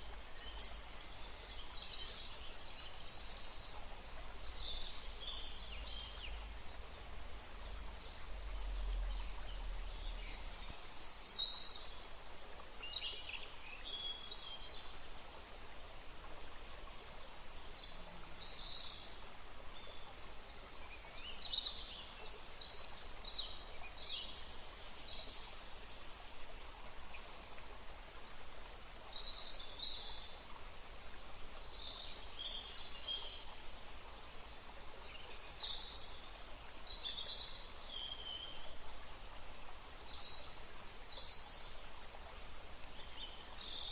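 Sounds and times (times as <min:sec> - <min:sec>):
steady background hiss: 0:00.0 - 0:43.9.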